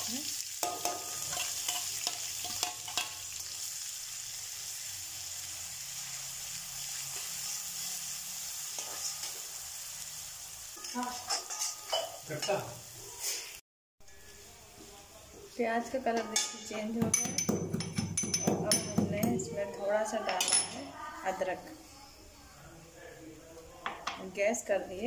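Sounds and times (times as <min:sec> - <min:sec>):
onion and garlic sizzling in oil: 0:00.0 - 0:20.3
metal spoon scraping a pan: 0:00.6 - 0:03.3, 0:08.6 - 0:09.6, 0:10.7 - 0:14.4.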